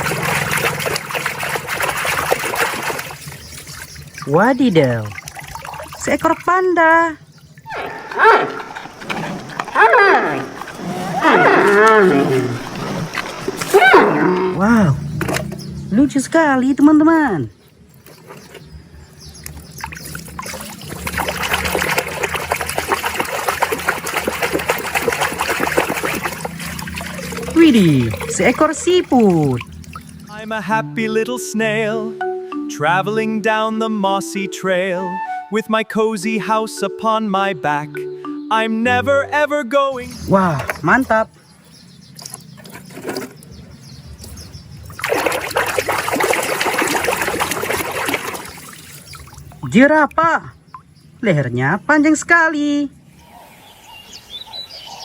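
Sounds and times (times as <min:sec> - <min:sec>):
water running and splashing: 0:00.0 - 0:30.5, 0:40.1 - 0:51.2.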